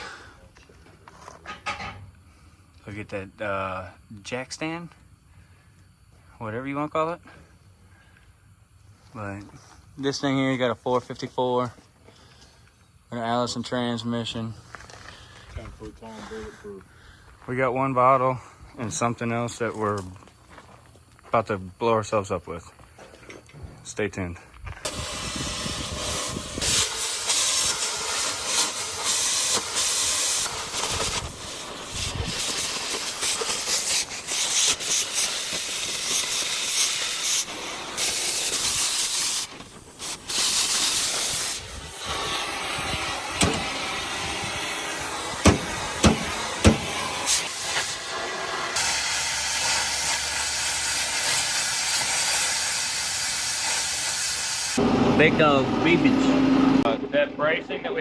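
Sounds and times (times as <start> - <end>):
sharp pops: 24.8 - 49.0
gas cutting torch hissing: 24.8 - 56.0.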